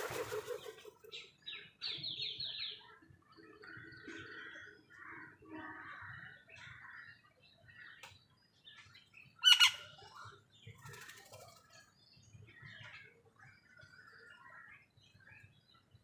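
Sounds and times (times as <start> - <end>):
raspy wing flutter: 0.0 - 1.0
small birds chirping: 0.0 - 16.0.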